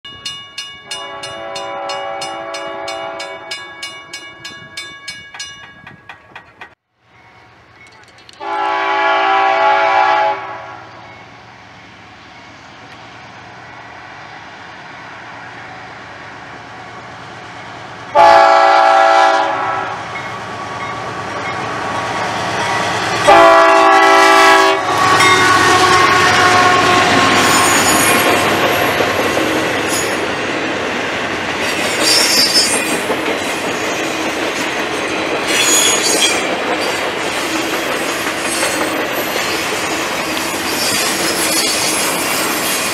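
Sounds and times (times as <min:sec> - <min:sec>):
train rumbling past: 0:00.1 - 0:42.9
locomotive air horn blasts: 0:00.9 - 0:03.5, 0:08.4 - 0:10.8, 0:18.1 - 0:20.1, 0:23.2 - 0:27.5
wheels clacking over rail joints: 0:03.6 - 0:06.8, 0:27.0 - 0:42.9
high wheel squeals: 0:27.1 - 0:28.4, 0:31.6 - 0:33.0, 0:35.5 - 0:42.9.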